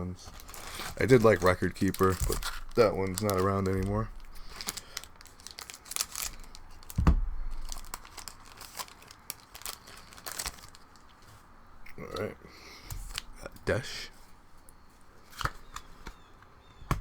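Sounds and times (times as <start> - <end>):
foil wrapper crinkling and tearing: 0.2 - 11.3, 12.9 - 14.0
dull thump: 7.0 - 7.6.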